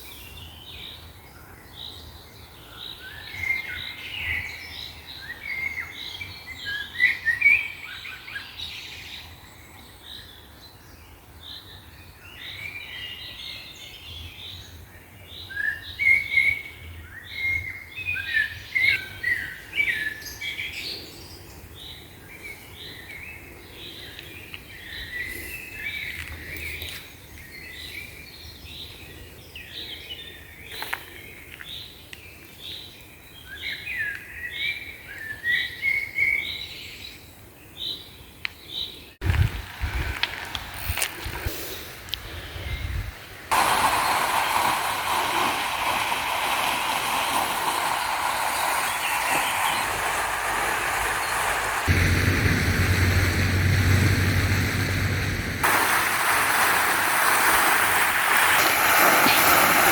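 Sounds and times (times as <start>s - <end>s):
songbirds chirping: 0.0s - 39.3s.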